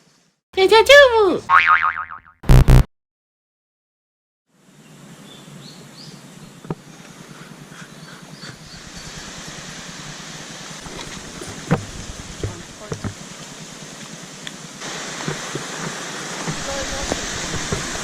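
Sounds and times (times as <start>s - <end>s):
steady rushing hiss: 4.5s - 18.0s.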